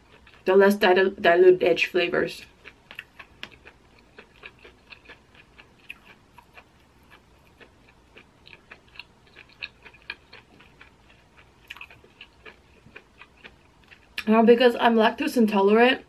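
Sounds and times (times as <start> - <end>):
wet chewing smacks: 2.6 - 14.3.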